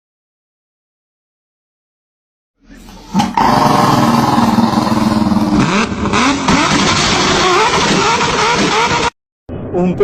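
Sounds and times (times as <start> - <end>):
engine running: 2.9 - 9.1.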